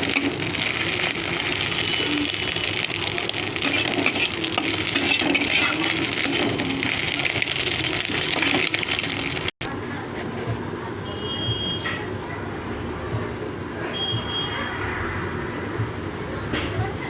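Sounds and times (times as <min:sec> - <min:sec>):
metal utensils clinking in a pan: 0:00.0 - 0:09.5.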